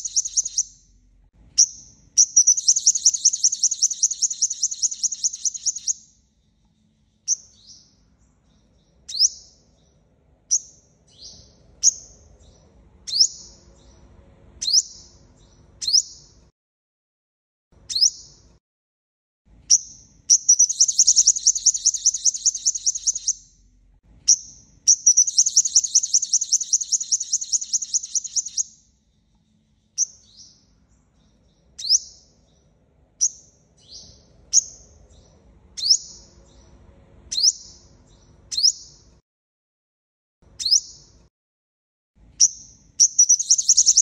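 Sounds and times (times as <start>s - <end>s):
sunbird chips and trills: 0.0s - 0.8s, 1.6s - 7.7s, 19.7s - 23.4s, 24.5s - 30.4s, 42.4s - 44.0s.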